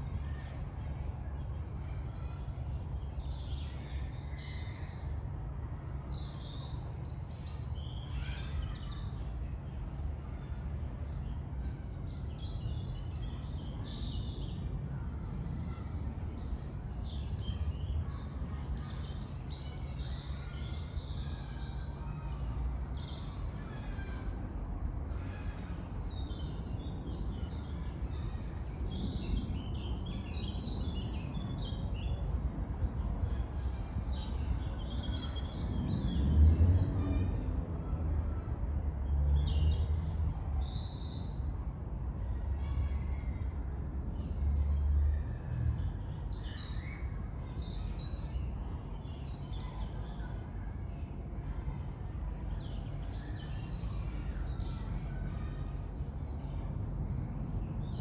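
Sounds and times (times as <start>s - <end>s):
distant traffic rumble: 0.0s - 58.0s
songbirds chirping and trilling: 0.0s - 58.0s.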